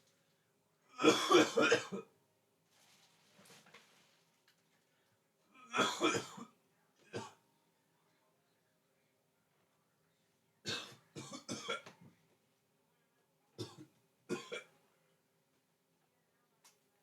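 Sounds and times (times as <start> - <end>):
boy coughing: 1.0 - 2.0.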